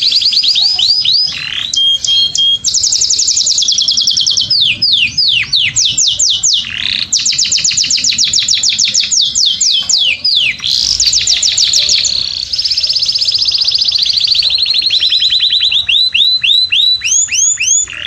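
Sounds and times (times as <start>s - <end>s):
songbird singing trills and whistles: 0.0s - 18.0s.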